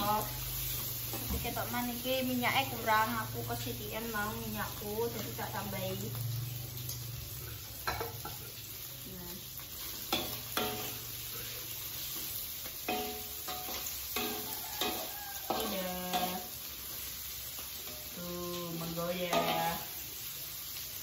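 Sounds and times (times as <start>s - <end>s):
chicken sizzling in a wok: 0.0s - 21.0s
metal spatula stirring: 9.8s - 16.6s, 19.1s - 19.9s.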